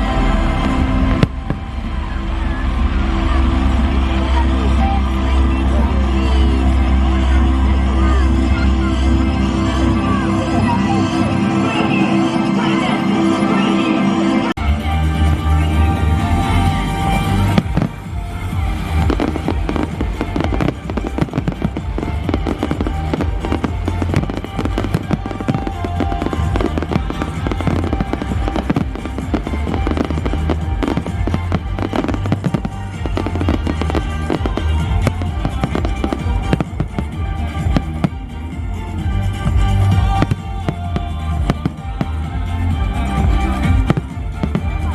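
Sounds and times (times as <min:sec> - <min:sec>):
firework bangs and crackles: 0:00.0 - 0:05.8, 0:15.2 - 0:44.9
loud music with deep bass: 0:00.0 - 0:44.9.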